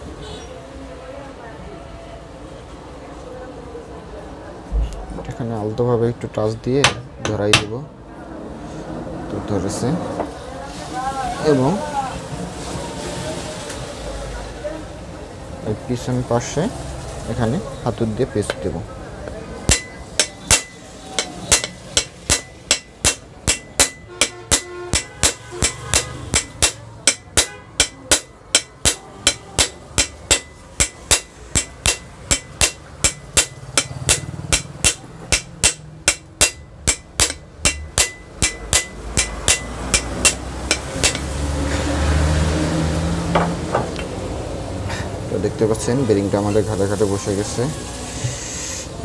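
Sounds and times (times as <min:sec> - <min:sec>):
light hammer taps on metal: 0:19.7 - 0:41.3.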